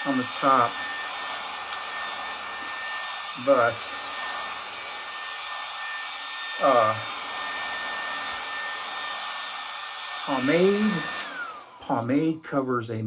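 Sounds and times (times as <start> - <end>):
hair clippers whirring: 0.0 - 12.2.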